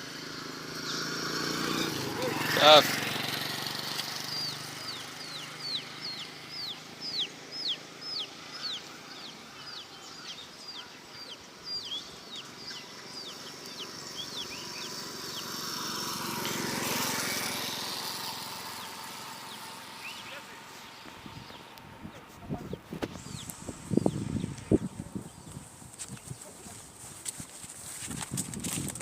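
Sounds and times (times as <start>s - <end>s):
chick peeping: 4.4s - 15.5s.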